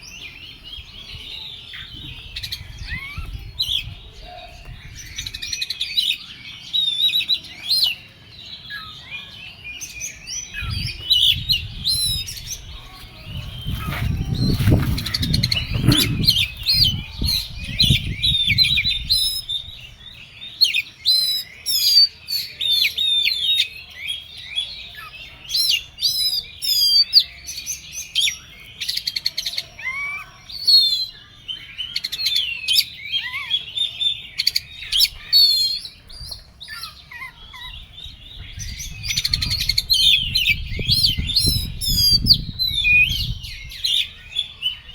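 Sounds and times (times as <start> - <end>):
bird singing whistles and trills: 0.0 - 44.9.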